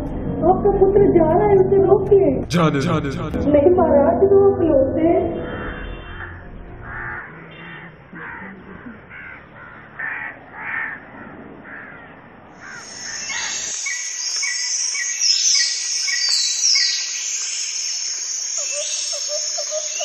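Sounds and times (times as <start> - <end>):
crow cawing: 5.4 - 14.0
high chirring with ticks: 12.6 - 20.0.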